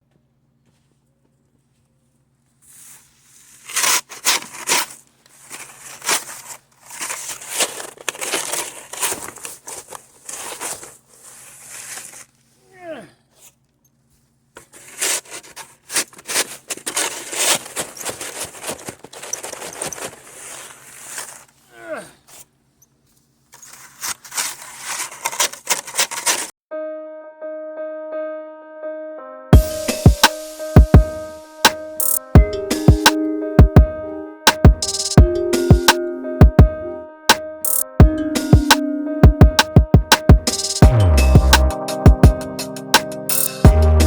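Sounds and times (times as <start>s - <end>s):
snow crunching and scraping: 2.6s - 12.5s, 14.6s - 21.7s, 23.5s - 26.5s.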